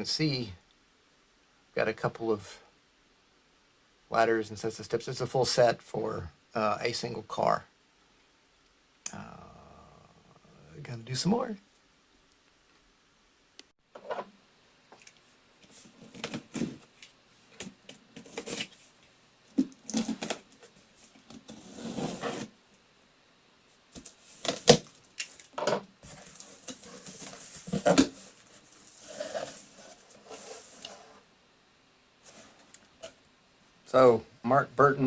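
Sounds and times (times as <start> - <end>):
scraping and rustling: 15.6 - 22.6, 23.9 - 31.3.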